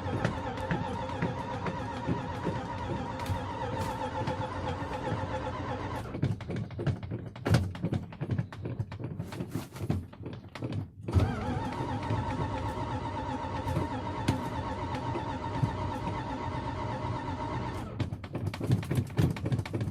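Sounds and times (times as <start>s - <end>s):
engine starter whine: 0.0s - 6.2s, 11.1s - 18.0s
irregular knocks and clicks: 0.0s - 12.9s, 17.6s - 19.9s.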